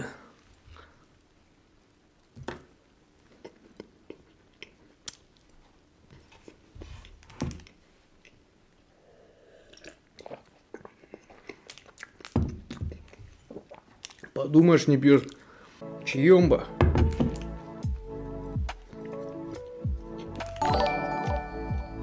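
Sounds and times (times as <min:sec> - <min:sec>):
chewing crumbly cookies: 0:03.2 - 0:06.6, 0:09.7 - 0:15.7.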